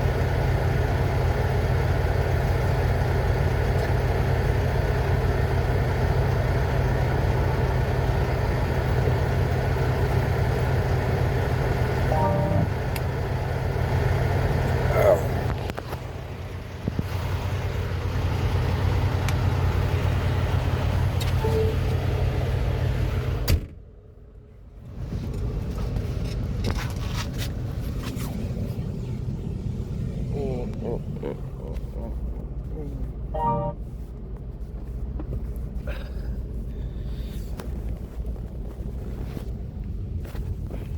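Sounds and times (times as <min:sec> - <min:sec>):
diesel truck engine running: 0:00.0 - 0:40.9
short pitched tone: 0:12.1 - 0:12.8, 0:21.4 - 0:22.0, 0:33.4 - 0:33.8.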